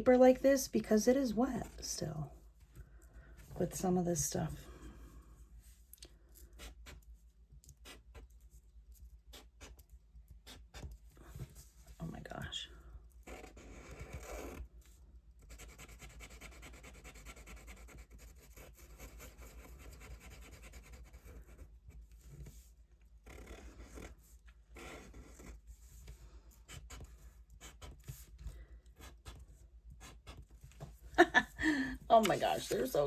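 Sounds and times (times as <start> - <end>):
scratching on paper: 6.4 - 11.8, 13.2 - 30.9.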